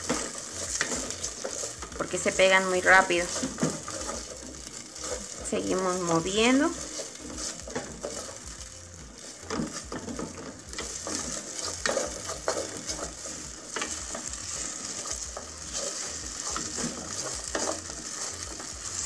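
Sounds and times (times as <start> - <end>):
potatoes sizzling in oil: 0.0 - 19.0
wooden spatula scraping a pot: 0.0 - 19.0.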